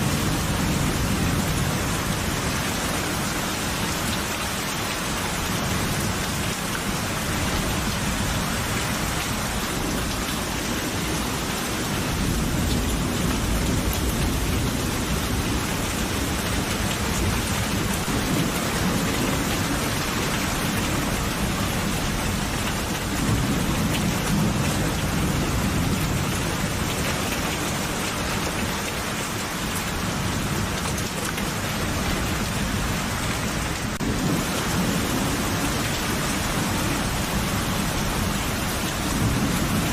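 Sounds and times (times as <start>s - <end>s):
steady rain falling: 0.0s - 39.9s
low rolling thunder: 9.4s - 27.0s, 32.0s - 39.9s.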